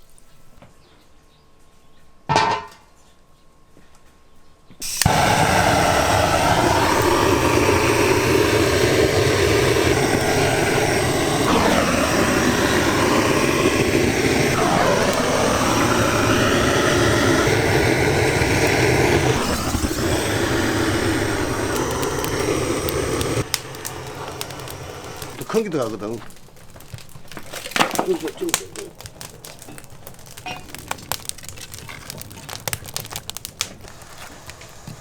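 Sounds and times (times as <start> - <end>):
machine running loudly: 4.8 - 25.5.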